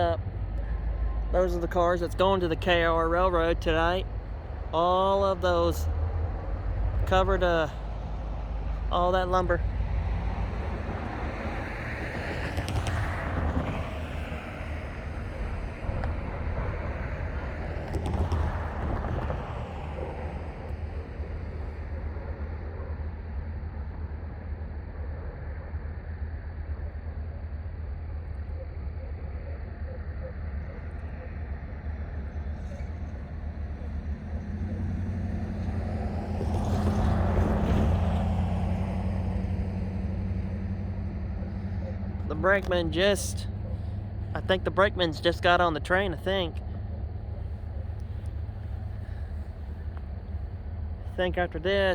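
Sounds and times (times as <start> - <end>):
wind buffeting microphone: 0.0 - 22.9
diesel locomotives rumbling: 0.0 - 51.9.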